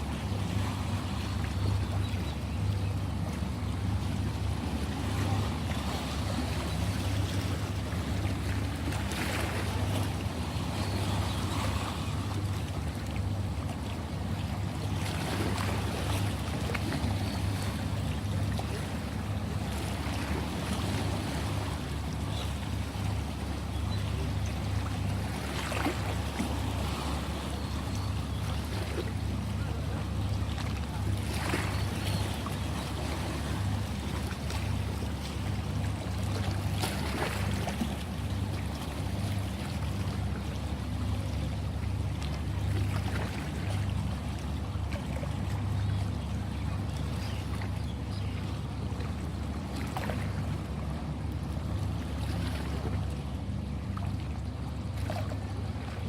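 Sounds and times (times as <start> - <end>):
ocean waves washing in: 0.0 - 2.2
sea waves washing: 0.0 - 56.0
water splashes: 0.0 - 56.0.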